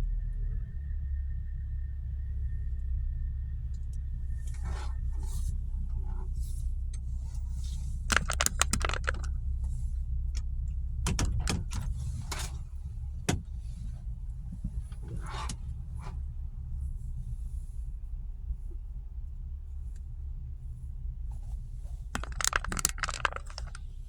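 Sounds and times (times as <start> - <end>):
small rattling clicks: 8.1 - 9.8, 22.2 - 24.0.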